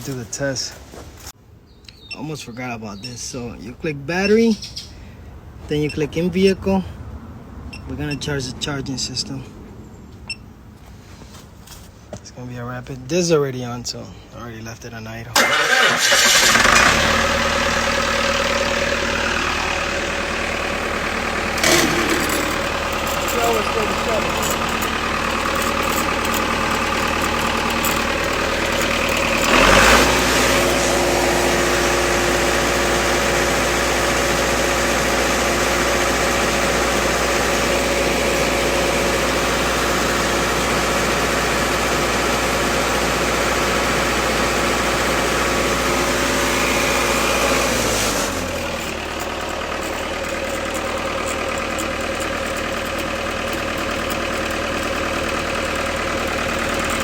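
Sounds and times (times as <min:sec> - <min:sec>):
welder engine idling and revving: 0:15.4 - 0:57.0.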